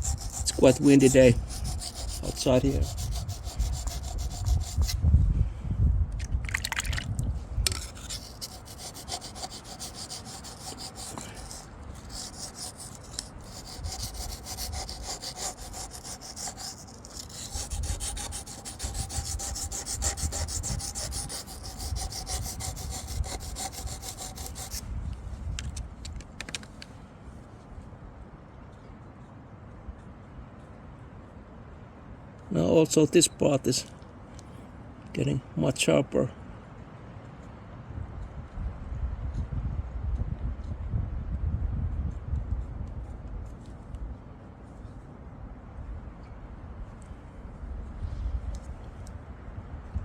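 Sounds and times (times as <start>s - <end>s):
wind rumble on microphone: 0.0s - 26.4s, 36.8s - 50.0s
knife scraping on sharpening stone: 7.7s - 24.8s.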